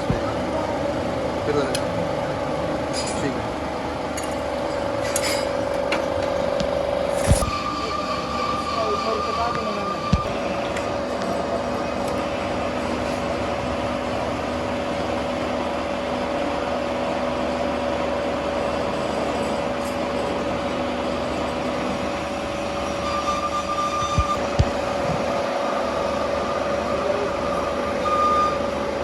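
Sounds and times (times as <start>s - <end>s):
factory machinery humming: 0.0s - 29.0s.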